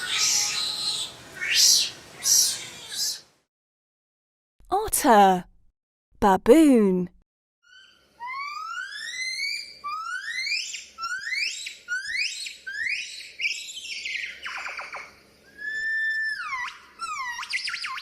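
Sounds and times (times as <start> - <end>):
baboon calling: 0.0 - 3.2, 7.6 - 13.6, 15.6 - 18.0.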